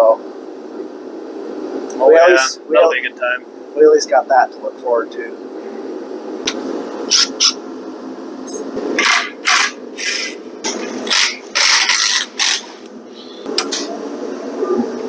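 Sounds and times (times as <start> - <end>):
steady hum: 0.0 - 15.0
power tool rasping bursts: 11.1 - 12.7.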